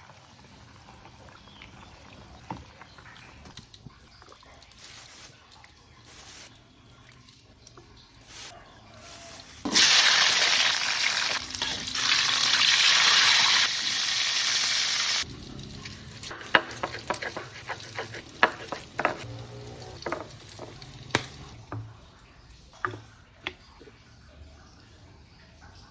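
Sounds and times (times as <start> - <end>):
food sizzling in hot oil: 8.2 - 21.6
spatula scraping a pan: 16.2 - 21.5.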